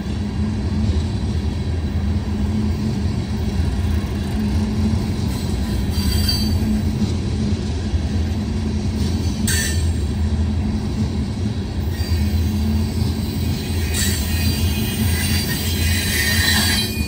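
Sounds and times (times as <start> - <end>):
train wheels rumbling on rail: 0.0 - 17.0
wheel squeal: 5.6 - 6.8, 11.9 - 17.0.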